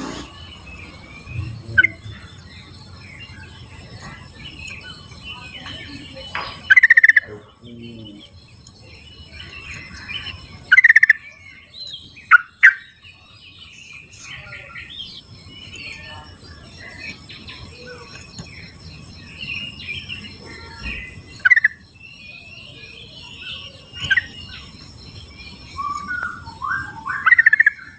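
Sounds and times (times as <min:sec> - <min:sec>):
chatter of other birds: 0:00.0 - 0:27.9.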